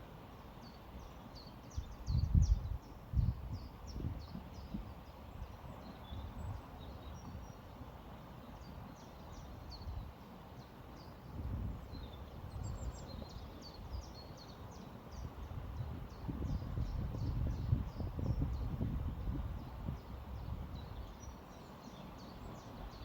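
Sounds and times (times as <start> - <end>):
wind on microphone: 1.7 - 7.5, 11.3 - 14.2, 15.1 - 21.3
small birds chirping: 11.8 - 23.0.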